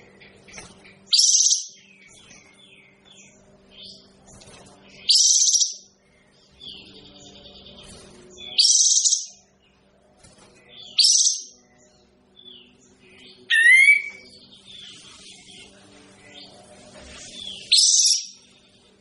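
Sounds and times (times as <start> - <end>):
steady low hum: 0.0 - 19.0
songbird singing loud phrases: 10.7 - 16.6.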